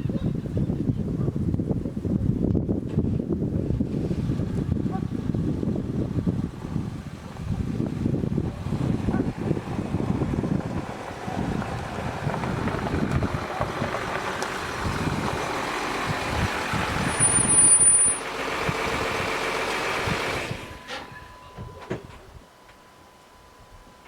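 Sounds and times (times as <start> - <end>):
car engine rumble: 0.0 - 24.0
high-pitched squeal: 16.3 - 23.7.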